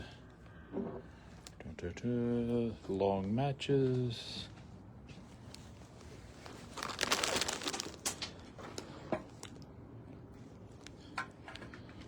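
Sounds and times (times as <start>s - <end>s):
rustling and crinkling: 5.2s - 9.5s.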